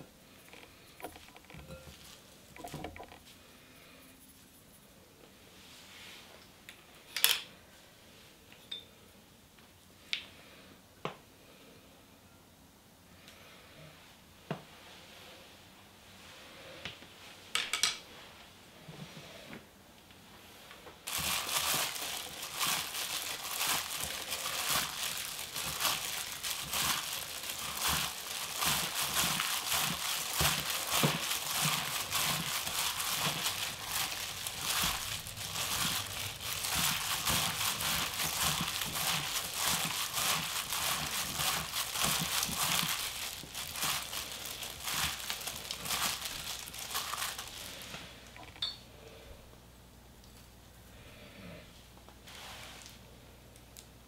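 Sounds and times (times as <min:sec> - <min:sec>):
plastic gloves crinkling: 0:21.0 - 0:48.4.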